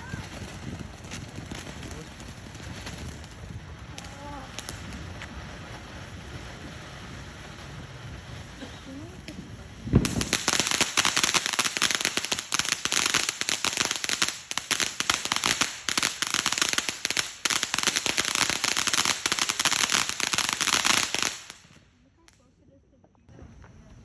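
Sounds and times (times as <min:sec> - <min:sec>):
firecrackers popping: 0:00.0 - 0:22.5.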